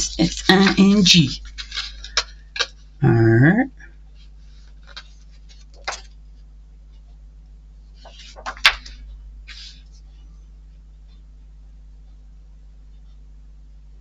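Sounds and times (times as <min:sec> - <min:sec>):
soft rustling: 0:00.0 - 0:02.4, 0:04.1 - 0:07.2, 0:07.9 - 0:11.2
low electrical hum: 0:00.0 - 0:14.0.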